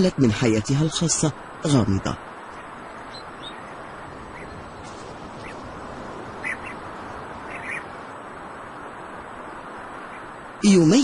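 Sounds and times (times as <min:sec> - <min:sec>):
steady background hiss: 0:00.0 - 0:11.0
short bird calls: 0:03.1 - 0:05.7, 0:06.3 - 0:08.0.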